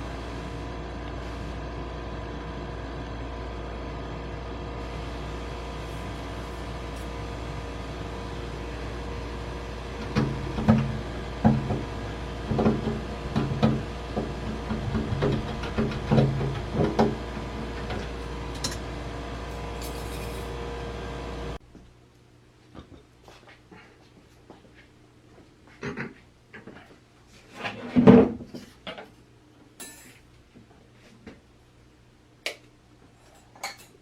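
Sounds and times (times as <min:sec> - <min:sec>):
steady machine hum: 0:00.0 - 0:22.6
knocks and clunks of parts: 0:10.0 - 0:18.8.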